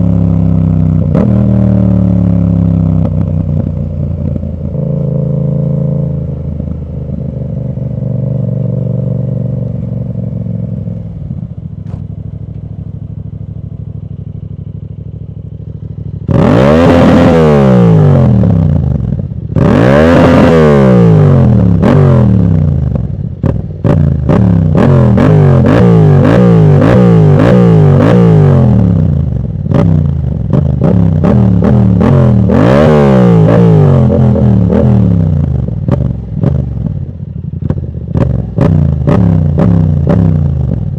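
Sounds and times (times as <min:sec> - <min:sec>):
motorcycle engine revving: 0:00.0 - 0:40.9
exhaust crackles and pops: 0:22.8 - 0:28.1, 0:33.4 - 0:37.0, 0:37.6 - 0:40.9.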